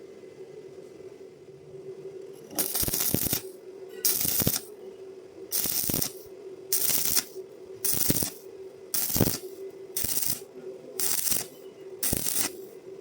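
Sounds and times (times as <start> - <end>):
steady hum: 0.0 - 13.0
welding arc crackling: 2.5 - 4.7, 5.5 - 12.8.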